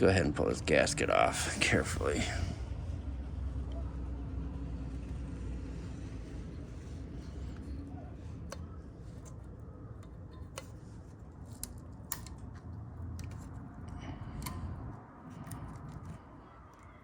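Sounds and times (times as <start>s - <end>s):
hands clicking and tapping on metal: 8.4s - 16.9s.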